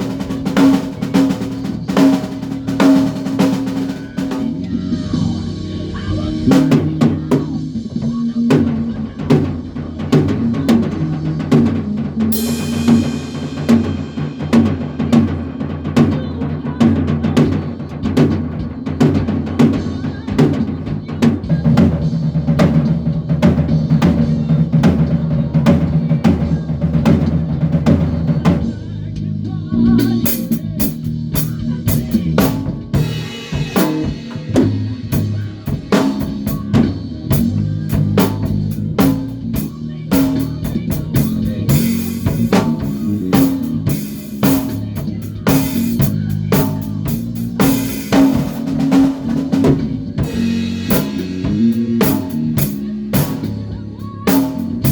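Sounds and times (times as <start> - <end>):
bass guitar line: 0.0 - 54.9
drum kit beat: 0.0 - 54.9
cymbal crashes: 12.3 - 15.9.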